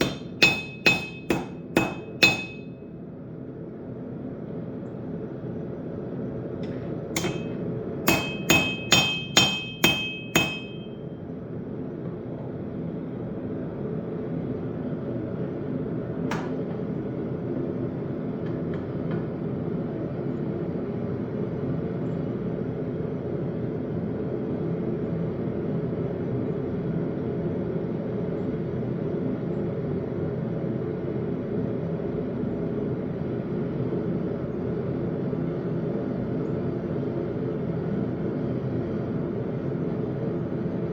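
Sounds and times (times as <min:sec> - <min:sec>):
hammer ringing on anvil: 0:00.0 - 0:02.8, 0:07.2 - 0:11.1.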